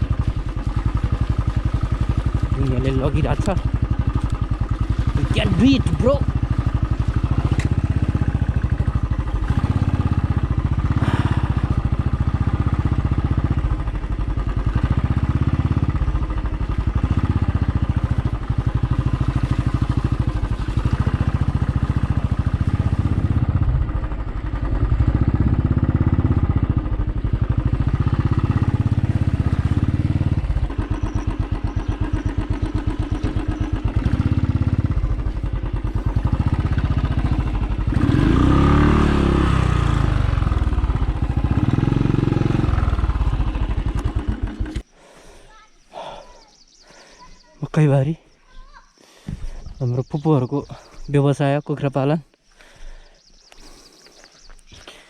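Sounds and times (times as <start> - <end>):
motorcycle engine running: 0.0 - 44.9, 48.5 - 51.9.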